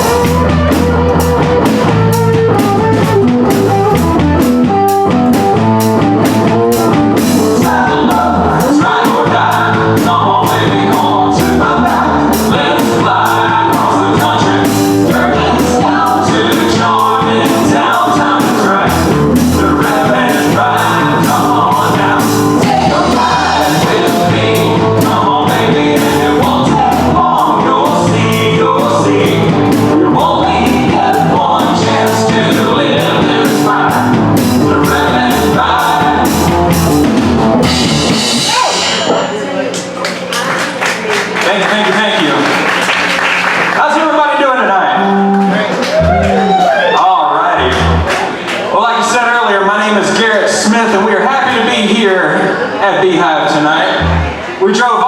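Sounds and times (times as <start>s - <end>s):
drum kit beat: 0.0s - 43.8s, 45.0s - 46.8s, 47.6s - 48.5s, 54.0s - 54.5s
live band playing: 0.0s - 43.9s, 44.8s - 48.7s, 53.9s - 54.7s
person singing: 6.5s - 39.3s.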